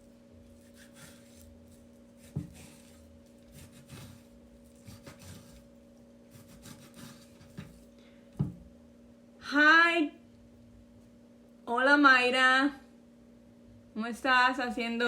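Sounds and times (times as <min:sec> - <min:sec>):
knife cutting meat on board: 0:00.4 - 0:05.7, 0:06.3 - 0:07.8.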